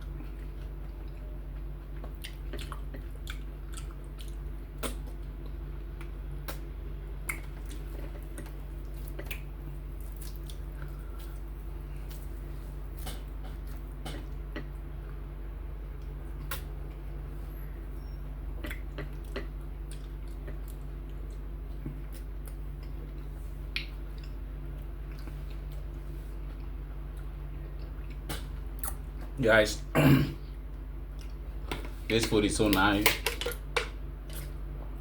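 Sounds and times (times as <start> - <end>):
chewing squelches and clicks: 0.0 - 12.3, 13.0 - 15.2, 18.0 - 29.3, 30.7 - 31.4
steady low hum: 0.0 - 35.0.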